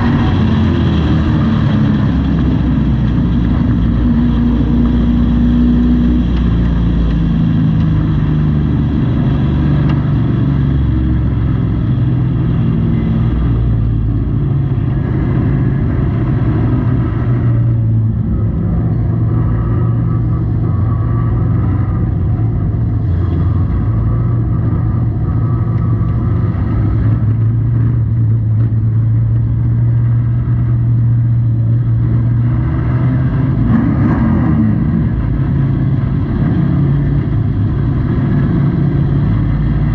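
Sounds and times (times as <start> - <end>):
truck engine running hard: 0.0 - 39.9.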